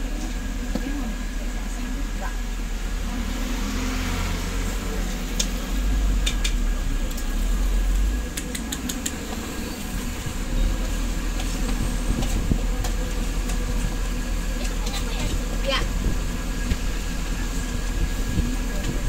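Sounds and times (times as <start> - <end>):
low traffic rumble: 0.0 - 19.0
light sharp clicks: 8.3 - 9.2.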